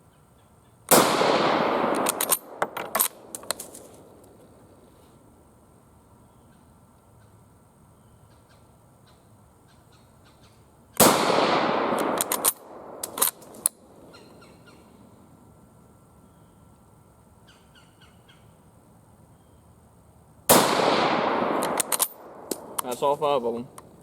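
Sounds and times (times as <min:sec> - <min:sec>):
rifle shot with echo: 0:00.9 - 0:04.7, 0:11.0 - 0:14.2, 0:20.5 - 0:24.0.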